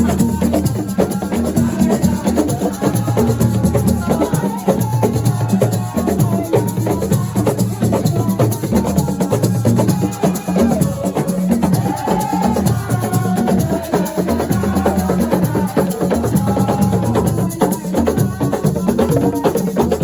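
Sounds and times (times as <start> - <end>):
hand percussion and shakers: 0.0 - 20.0.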